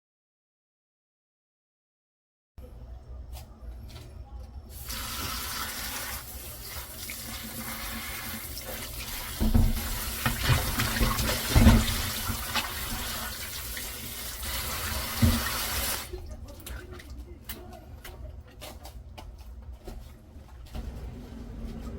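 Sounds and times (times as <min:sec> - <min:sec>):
tap running into sink: 0:08.7 - 0:13.4, 0:14.5 - 0:16.0
dull knocks and splashes: 0:09.3 - 0:13.2.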